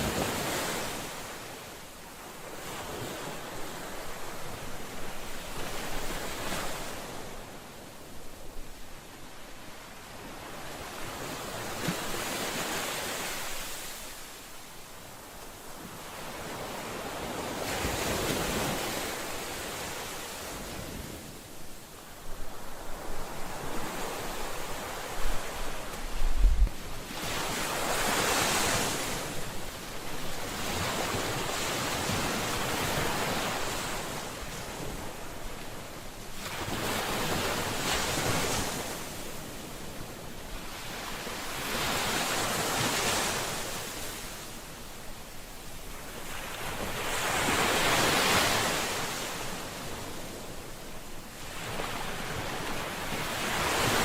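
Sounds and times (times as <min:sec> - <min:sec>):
wind thumps on microphone: 0:25.2 - 0:26.9.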